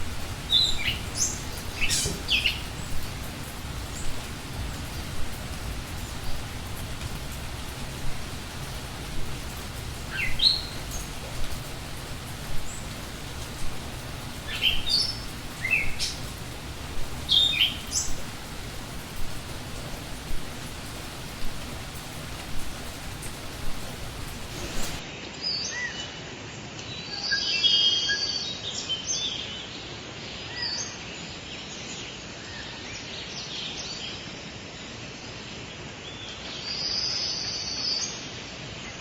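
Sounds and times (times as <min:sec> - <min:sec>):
birds whistled chirps: 0:00.0 - 0:25.0
rushing background noise: 0:00.0 - 0:25.0.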